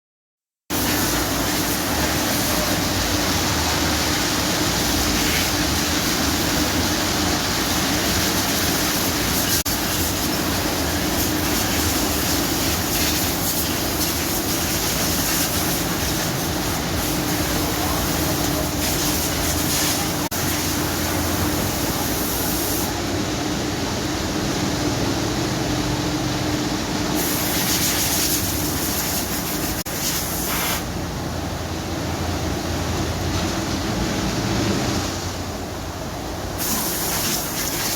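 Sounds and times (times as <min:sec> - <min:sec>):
water spray rushing: 0:00.7 - 0:23.0, 0:27.2 - 0:31.0, 0:36.6 - 0:37.9.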